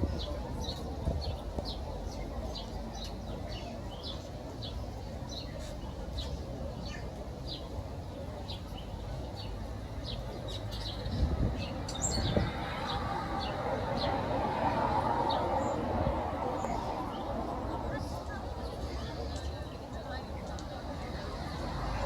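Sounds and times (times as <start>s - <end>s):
small birds chirping: 0.2s - 14.2s.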